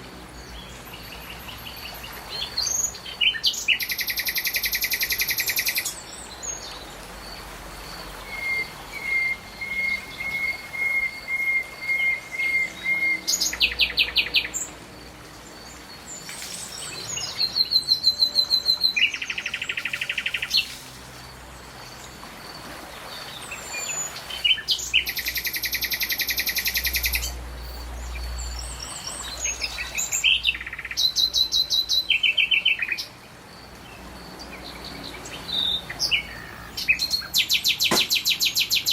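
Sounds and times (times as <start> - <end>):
steady outdoor hiss: 0.0 - 38.9
birds chirping and trilling: 8.0 - 22.2, 23.0 - 38.9.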